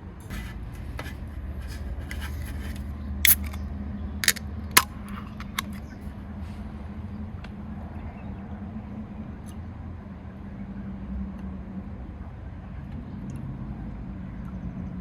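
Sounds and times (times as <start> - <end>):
short sharp clicks and knocks: 4.2 - 5.8.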